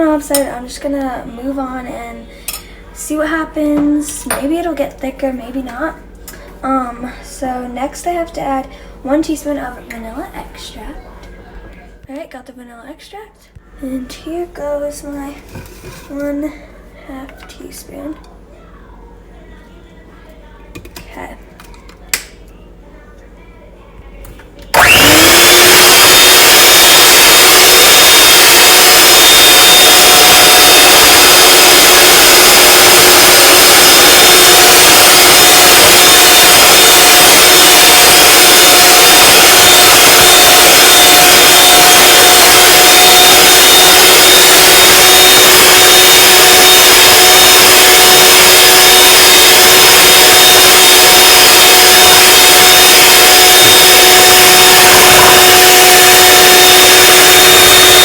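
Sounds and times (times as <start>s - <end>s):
electric mixer whining: 24.7s - 58.0s.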